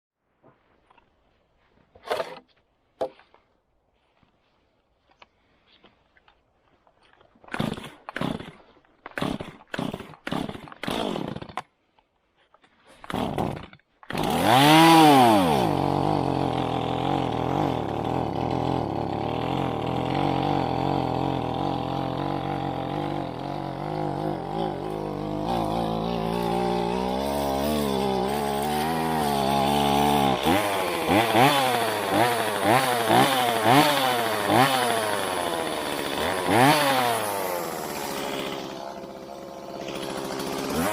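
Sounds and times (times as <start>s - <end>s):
chainsaw starter cord pulls: 7.0s - 11.8s, 12.6s - 40.9s
chainsaw engine running and revving: 9.2s - 11.5s, 13.1s - 40.9s.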